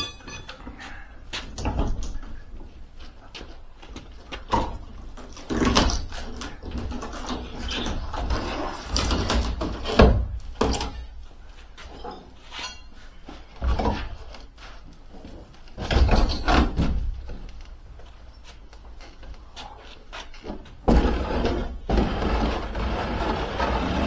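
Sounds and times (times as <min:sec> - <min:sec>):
wood scraping: 0:20.4 - 0:24.0.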